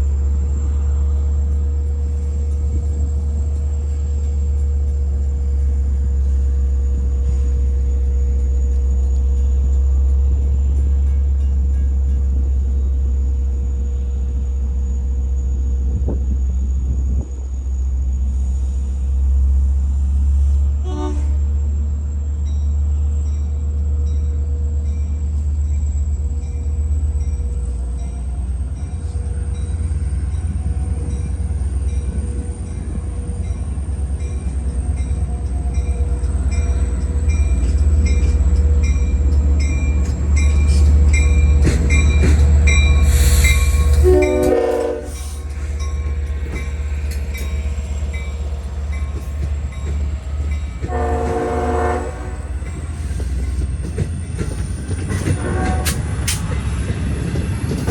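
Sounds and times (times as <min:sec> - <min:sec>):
diesel locomotive engine rumble: 0:00.0 - 0:57.9
train chord horn blasts: 0:20.8 - 0:21.5, 0:43.8 - 0:45.5, 0:50.8 - 0:52.6, 0:55.4 - 0:56.1.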